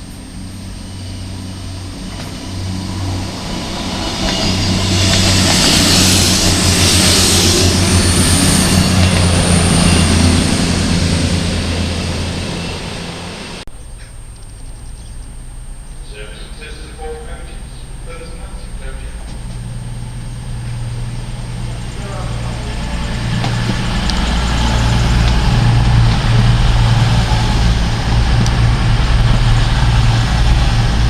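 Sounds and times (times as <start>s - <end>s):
train passing at speed: 0.0s - 13.6s, 15.3s - 31.0s.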